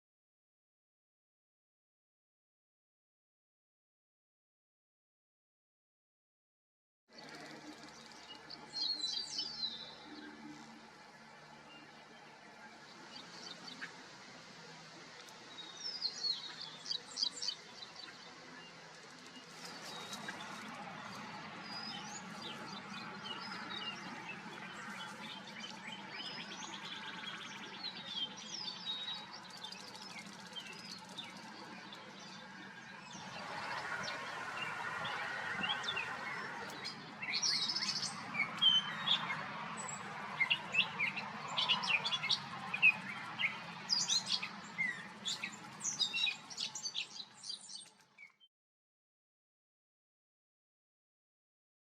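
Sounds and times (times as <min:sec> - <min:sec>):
small birds chirping: 0:07.2 - 0:48.4.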